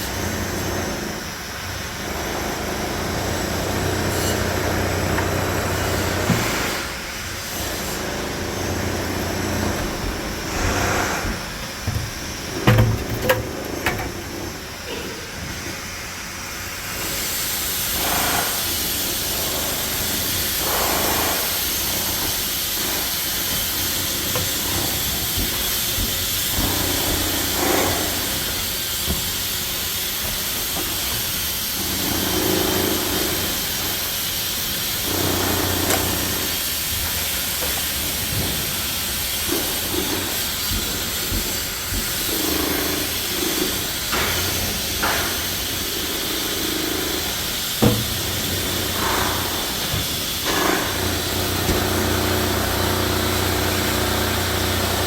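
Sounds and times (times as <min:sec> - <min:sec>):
scraping and knocking: 0:10.6 - 0:14.6
loud hissing: 0:17.0 - 0:55.0.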